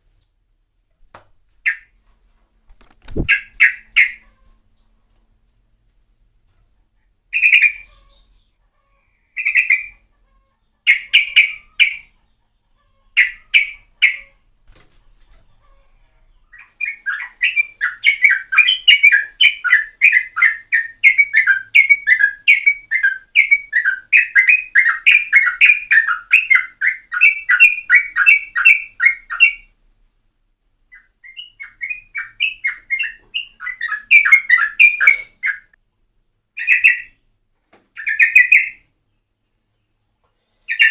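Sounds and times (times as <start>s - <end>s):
bulbul singing: 3.1s - 4.2s, 7.3s - 8.5s, 9.3s - 10.0s, 16.5s - 29.7s, 30.9s - 35.8s, 36.6s - 37.2s, 38.0s - 38.9s.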